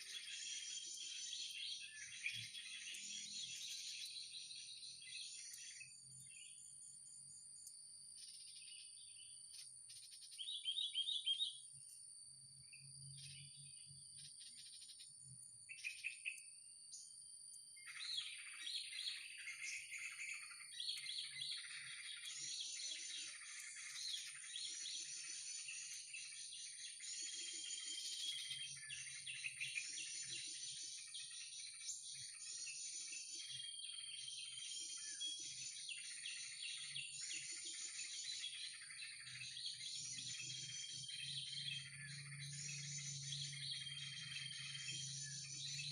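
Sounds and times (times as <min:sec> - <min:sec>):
small birds chirping: 0:00.0 - 0:45.9
high-pitched insect drone: 0:37.2 - 0:45.9.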